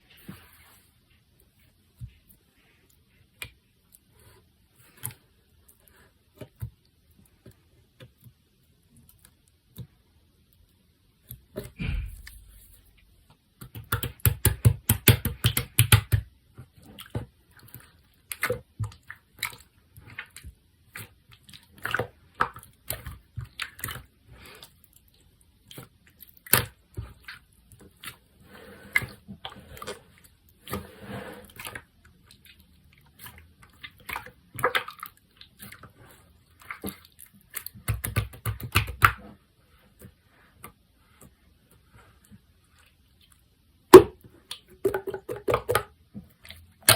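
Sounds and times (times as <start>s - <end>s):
slime squishing by hand: 11.2s - 46.9s.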